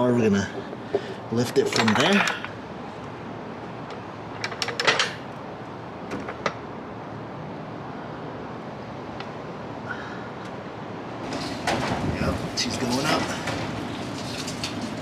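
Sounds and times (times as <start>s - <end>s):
steady background hiss: 0.0s - 15.0s
metal clicks and clanks: 0.6s - 2.6s, 3.8s - 5.2s.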